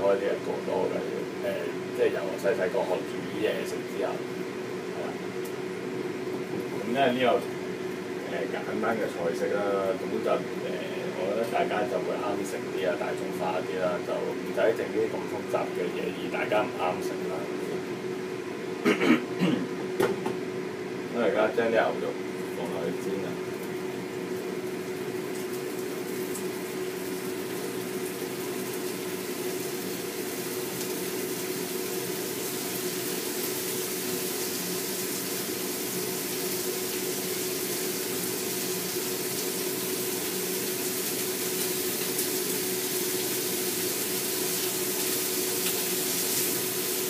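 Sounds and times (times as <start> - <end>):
steady hum: 0.0 - 47.0
food sizzling in a frying pan: 23.4 - 47.0.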